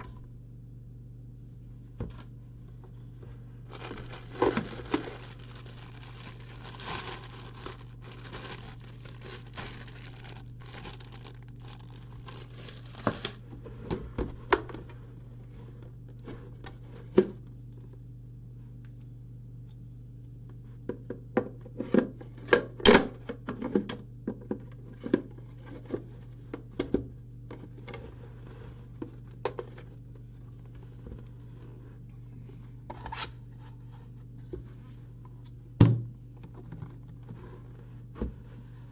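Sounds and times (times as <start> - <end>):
packaging crinkling and tearing: 3.7 - 13.4.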